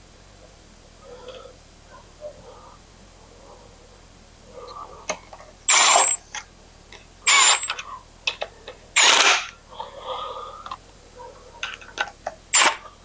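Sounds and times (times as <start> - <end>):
ratchet wrench spinning: 5.7 - 6.2, 7.3 - 7.8.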